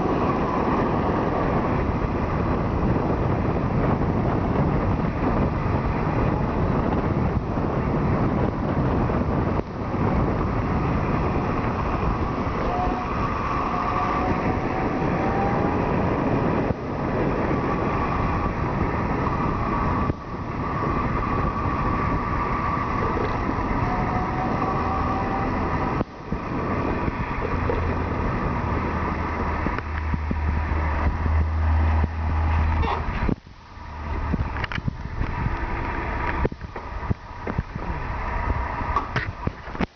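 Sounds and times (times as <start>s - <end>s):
wind and road noise: 0.0s - 39.9s
electric motor whine: 9.9s - 30.6s.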